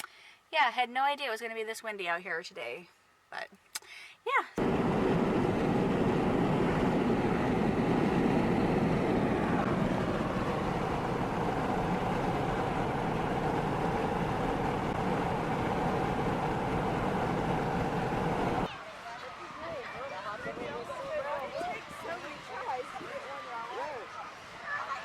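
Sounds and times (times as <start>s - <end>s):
car road and engine noise: 4.6s - 18.8s.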